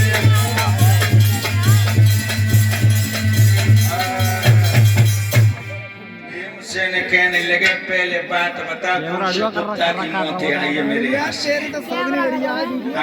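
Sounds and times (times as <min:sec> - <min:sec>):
fast drumming: 0:00.0 - 0:05.6
folk band playing: 0:00.0 - 0:07.9.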